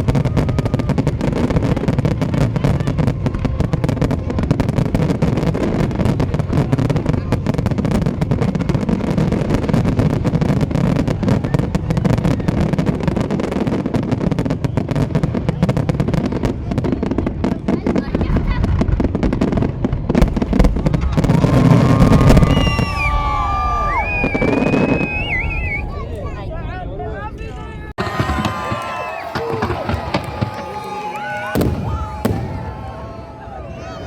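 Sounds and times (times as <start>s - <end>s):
fireworks popping and crackling: 0.0s - 25.8s, 28.0s - 32.8s
crowd voices: 15.3s - 34.0s.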